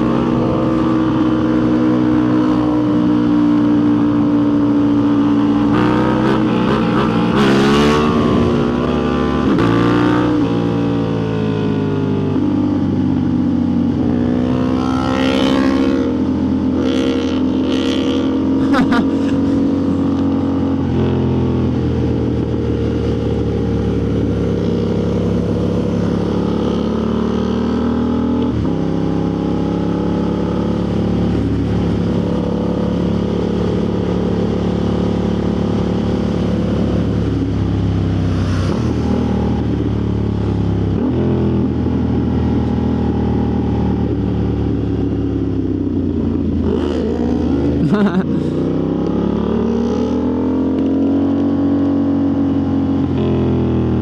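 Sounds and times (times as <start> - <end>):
wind noise: 0.0 - 11.0.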